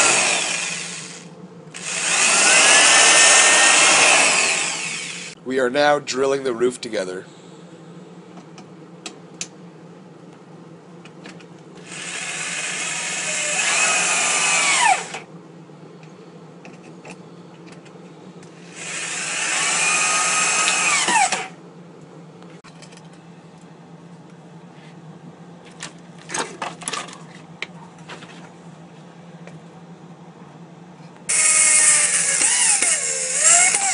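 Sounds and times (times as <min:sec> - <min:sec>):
power drill drilling into wood: 0:00.0 - 0:01.2, 0:01.8 - 0:05.3, 0:11.8 - 0:15.2, 0:18.7 - 0:21.5, 0:31.3 - 0:33.9.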